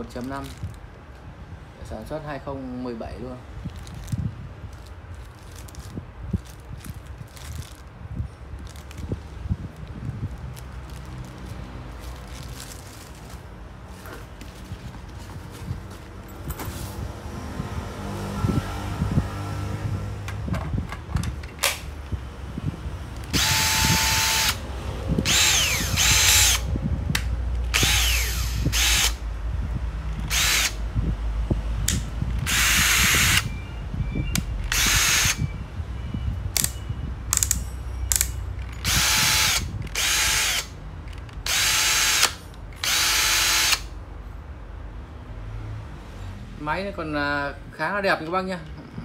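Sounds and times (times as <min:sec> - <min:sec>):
cordless drill motor whine: 0:23.3 - 0:24.6, 0:25.2 - 0:26.7, 0:27.7 - 0:29.2, 0:30.3 - 0:30.8, 0:32.4 - 0:33.6, 0:34.3 - 0:35.5, 0:38.8 - 0:40.7, 0:41.4 - 0:43.9.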